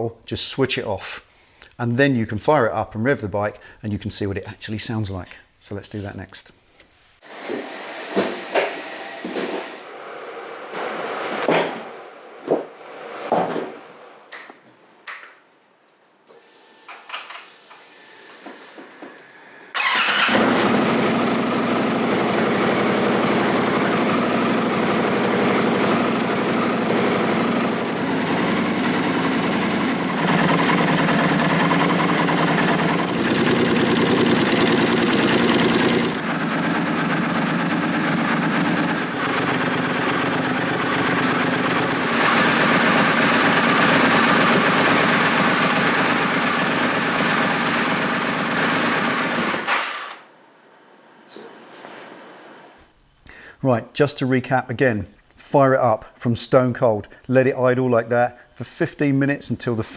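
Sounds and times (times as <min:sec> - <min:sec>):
motorcycle engine starting and idling: 0:19.7 - 0:50.1.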